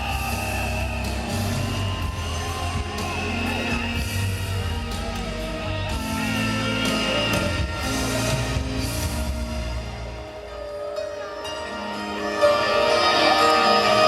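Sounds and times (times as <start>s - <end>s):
live rock band playing: 0.0s - 10.3s.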